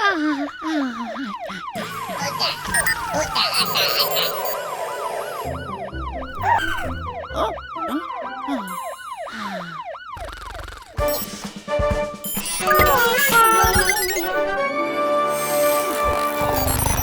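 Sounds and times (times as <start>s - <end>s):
cartoon siren yelping: 0.0s - 11.0s, 12.6s - 14.5s.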